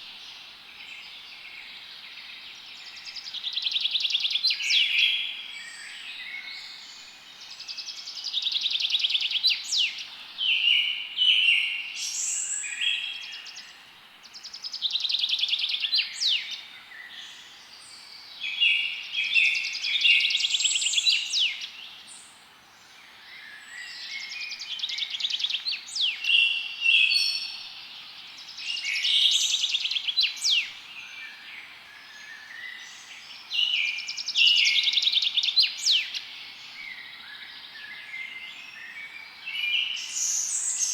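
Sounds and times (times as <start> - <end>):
faint steady hiss: 0.0 - 40.9
songbird singing trills: 23.3 - 40.9.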